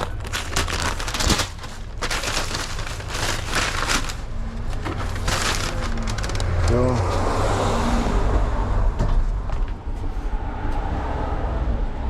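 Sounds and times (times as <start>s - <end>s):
food wrapper crinkling: 0.0s - 6.8s.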